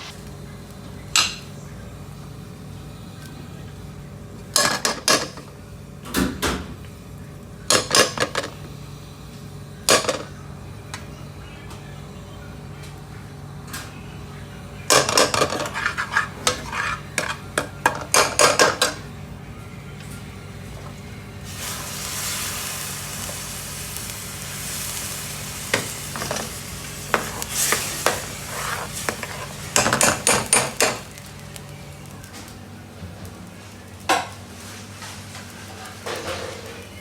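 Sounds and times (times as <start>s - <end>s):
food sizzling: 0.0s - 5.4s, 20.6s - 37.0s
metal utensils clattering in pans: 14.9s - 19.0s, 25.7s - 31.3s, 35.0s - 36.9s.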